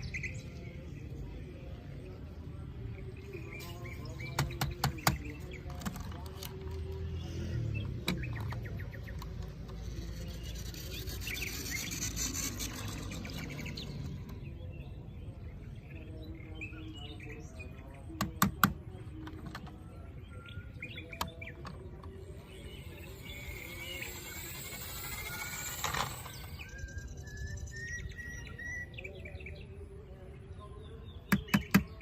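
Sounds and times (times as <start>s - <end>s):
birds chirping: 0.0s - 32.0s
sharp clicks: 31.3s - 32.0s.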